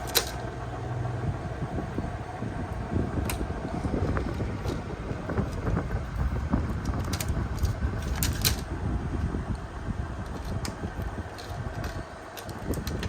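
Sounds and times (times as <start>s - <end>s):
air conditioner running: 0.0s - 13.0s.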